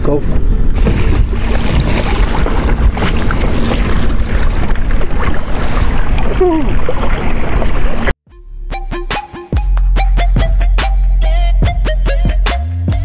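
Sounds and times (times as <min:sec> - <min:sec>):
wind buffeting microphone: 0:00.0 - 0:08.1
water noise: 0:00.0 - 0:08.2.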